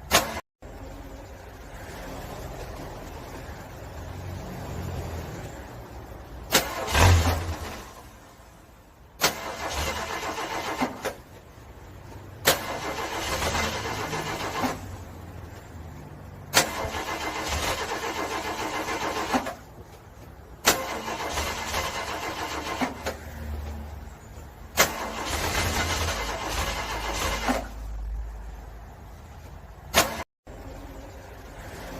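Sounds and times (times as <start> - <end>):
car engine cranking: 6.2 - 8.3, 9.0 - 15.2, 16.4 - 23.4, 24.4 - 28.0.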